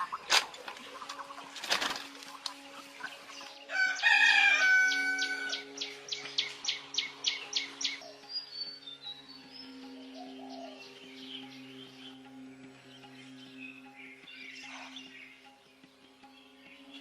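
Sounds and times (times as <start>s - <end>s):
rooster crowing: 3.7s - 5.6s.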